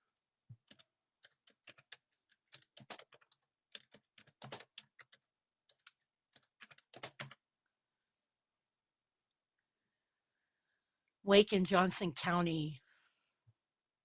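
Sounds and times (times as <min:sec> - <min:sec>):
typing on keyboard: 0:00.5 - 0:07.4.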